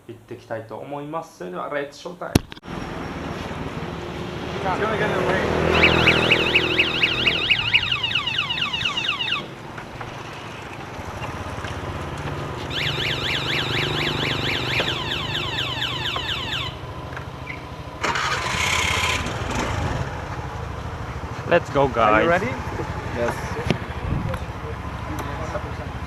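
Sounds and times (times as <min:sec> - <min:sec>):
small vehicle engine running: 0:02.9 - 0:26.0
high warbling chirps: 0:05.6 - 0:09.5, 0:12.6 - 0:16.8.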